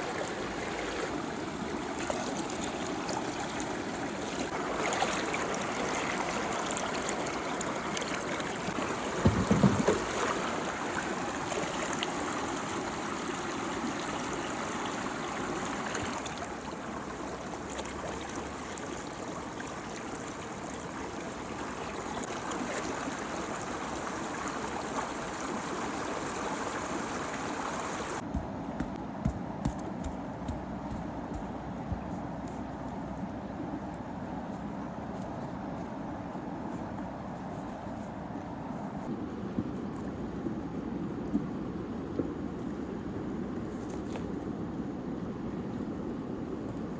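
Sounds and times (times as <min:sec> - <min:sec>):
low splash: 0:08.7 - 0:12.0.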